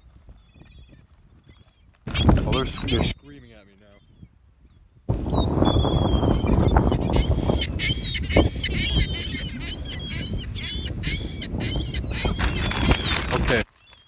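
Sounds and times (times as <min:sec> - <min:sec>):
gulls calling: 0:02.1 - 0:04.2, 0:05.1 - 0:14.0.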